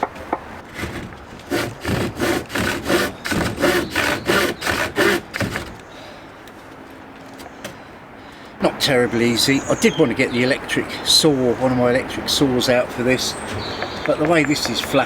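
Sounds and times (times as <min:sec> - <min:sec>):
hand saw cutting wood: 0:00.7 - 0:05.8.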